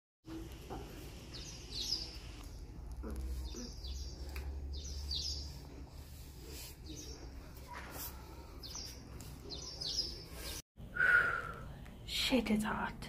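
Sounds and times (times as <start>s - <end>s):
small birds chirping: 0.3s - 10.6s.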